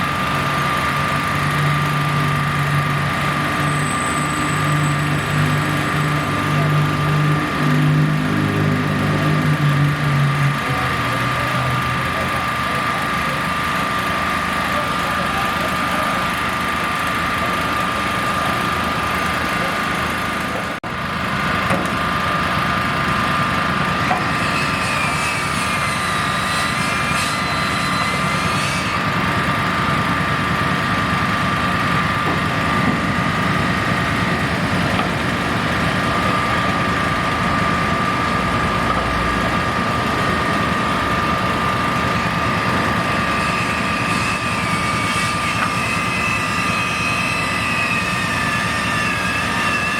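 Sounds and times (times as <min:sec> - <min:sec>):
engine and machinery whine: 0:00.0 - 0:49.9.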